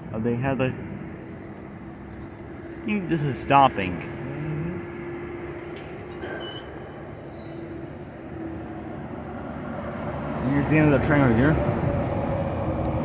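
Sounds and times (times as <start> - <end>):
freight train rumbling past: 0.0 - 13.0
faint thin squeal: 6.2 - 7.8, 8.6 - 9.0.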